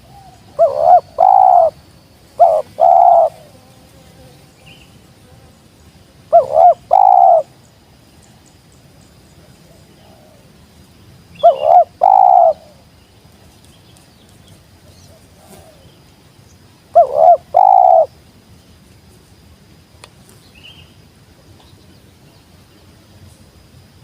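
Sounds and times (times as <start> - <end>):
dove cooing: 0.0 - 1.8, 2.4 - 3.5, 6.3 - 7.5, 11.4 - 12.8, 15.0 - 15.9, 16.9 - 18.1.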